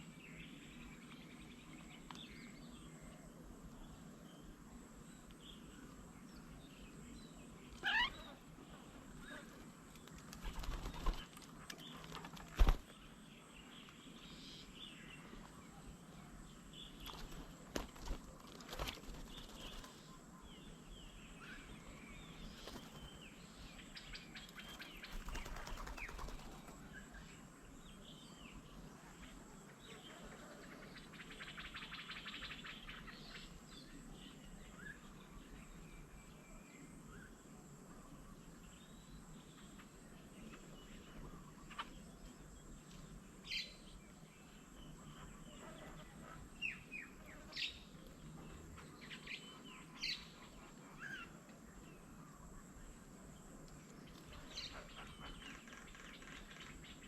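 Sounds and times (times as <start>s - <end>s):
wild birds chirping: 0.0s - 57.0s
bird trill: 7.8s - 8.4s.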